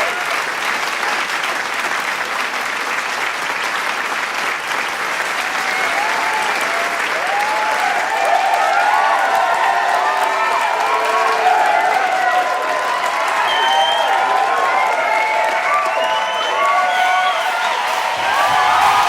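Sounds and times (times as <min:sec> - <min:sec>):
crowd clapping: 0:00.0 - 0:19.0
voices cheering and shouting: 0:05.5 - 0:19.0.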